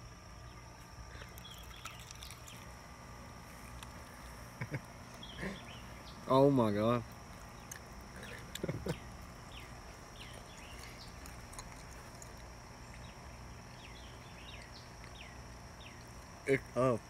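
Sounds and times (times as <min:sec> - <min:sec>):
small birds chirping: 0:00.0 - 0:02.9, 0:03.5 - 0:16.7.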